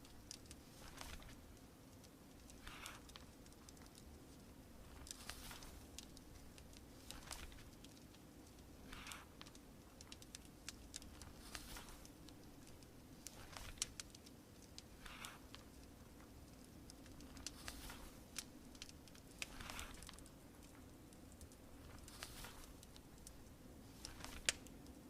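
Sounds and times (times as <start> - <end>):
wood fire crackling and popping: 0.0 - 25.0
paper pages turning: 0.7 - 1.4, 4.8 - 7.9, 8.9 - 15.8, 17.0 - 20.8, 21.8 - 23.1, 23.9 - 24.7.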